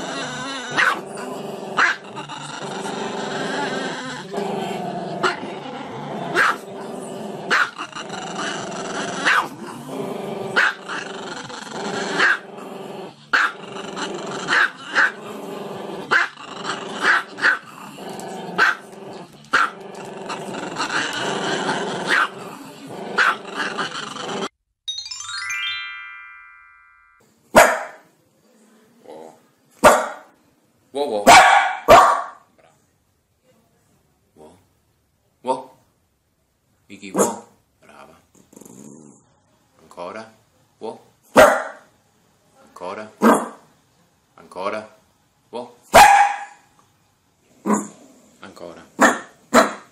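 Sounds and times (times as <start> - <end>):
electronic chime: 24.9 - 27.2
music: 24.9 - 27.2
dog barking sharply: 27.6 - 28.0, 29.8 - 30.3, 31.3 - 32.4, 37.2 - 37.5, 41.4 - 41.8, 45.9 - 46.6, 49.0 - 49.9.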